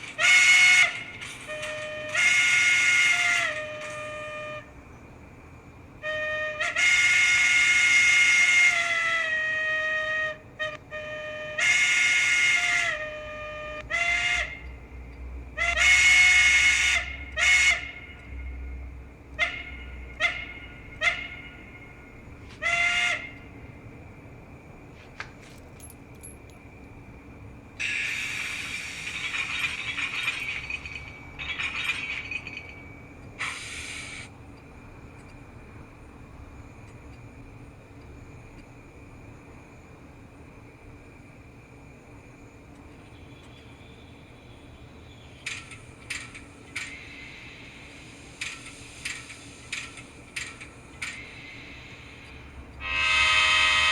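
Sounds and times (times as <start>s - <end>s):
model train steam whistle: 0.0s - 4.8s, 6.0s - 23.6s, 27.8s - 30.8s, 33.3s - 34.3s, 46.8s - 53.9s
steam hiss: 27.8s - 31.0s, 33.4s - 34.4s, 45.1s - 53.9s.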